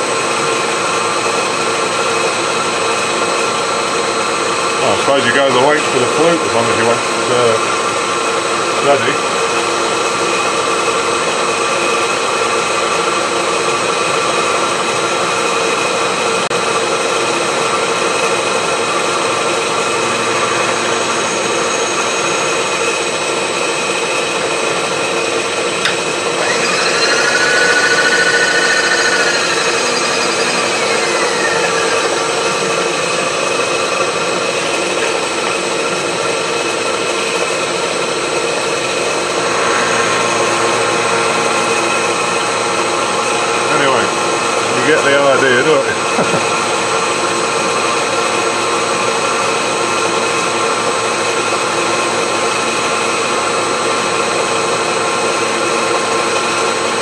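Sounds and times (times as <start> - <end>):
machine whine: 0.0 - 57.0
milling machine cutting metal: 16.6 - 57.0.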